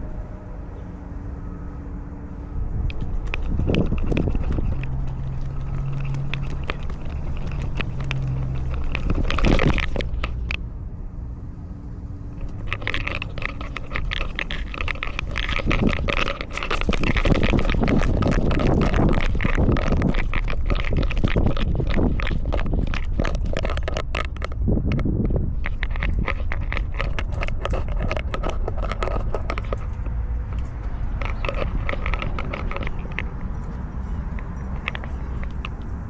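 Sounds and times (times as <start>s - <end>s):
collar camera rubbing and scraping: 0.9s - 10.6s, 12.0s - 36.0s
dense crackling and ticking: 1.4s - 10.7s, 12.1s - 36.0s.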